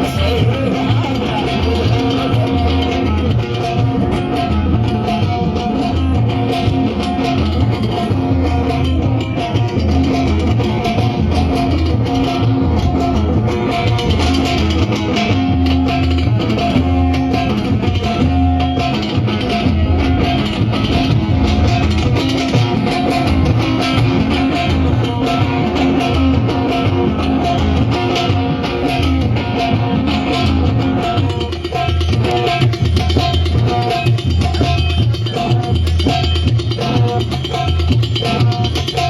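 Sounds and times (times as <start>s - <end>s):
bass: 0.0s - 39.0s
drums keeping a steady beat: 0.0s - 39.0s
guitar: 0.0s - 39.0s.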